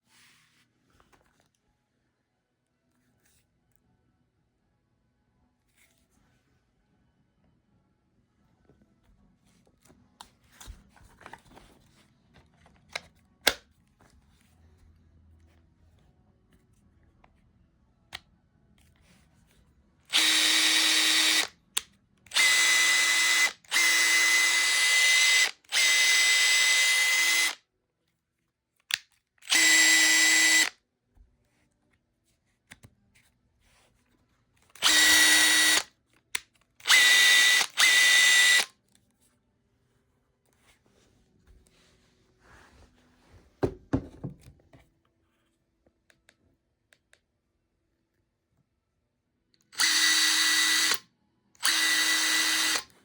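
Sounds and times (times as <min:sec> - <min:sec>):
impact driver motor whine: 0:29.5 - 0:30.7, 0:34.8 - 0:35.8, 0:36.9 - 0:38.7, 0:49.8 - 0:51.0, 0:51.6 - 0:52.8.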